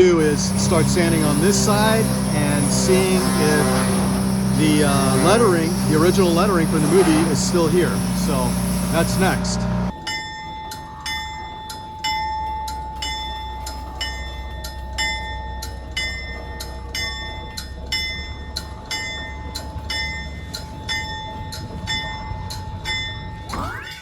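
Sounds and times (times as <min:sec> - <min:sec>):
low engine rumble: 0:00.0 - 0:09.9
locomotive bell ringing: 0:00.0 - 0:24.0.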